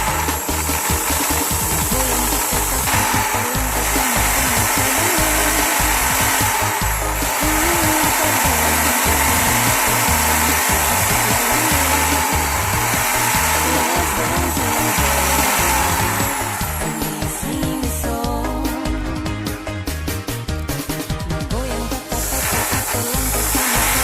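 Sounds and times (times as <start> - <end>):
electric drill running: 0.0 - 18.4, 21.8 - 24.0
tool rubbing spinning wood: 0.0 - 18.7, 21.8 - 24.0
background music: 0.0 - 24.0.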